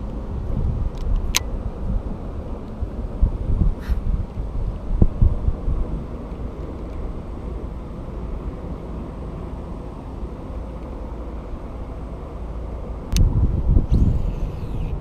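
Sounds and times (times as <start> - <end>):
wind buffeting microphone: 0.1 - 6.3, 13.1 - 15.0.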